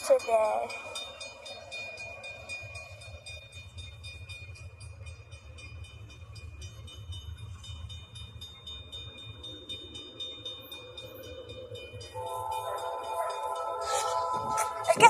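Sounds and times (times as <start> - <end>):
high ringing tone: 0.0 - 15.0
train rumbling past: 0.0 - 15.0.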